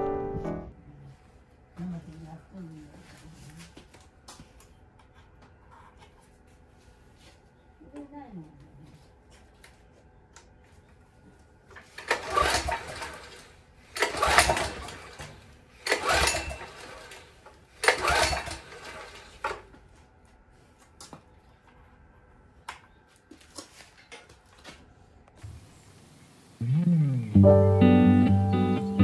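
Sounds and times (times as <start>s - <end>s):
recoil starter pull whirring: 11.8s - 19.7s.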